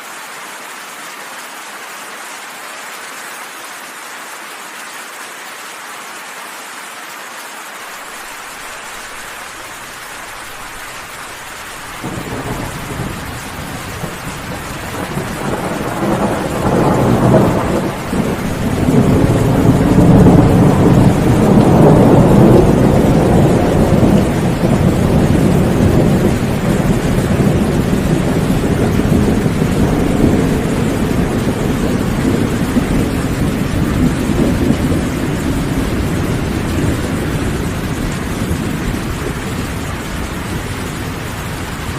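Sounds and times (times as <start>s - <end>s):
steady rain: 0.0s - 41.9s
rolling thunder: 10.4s - 41.9s.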